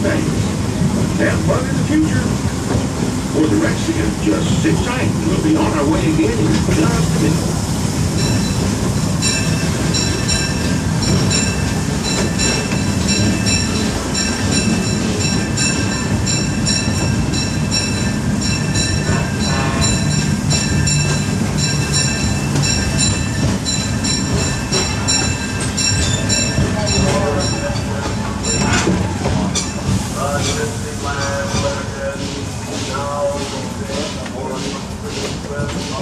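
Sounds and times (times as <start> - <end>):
train rumble: 0.0 - 36.0
wheels squealing on rails: 8.1 - 36.0.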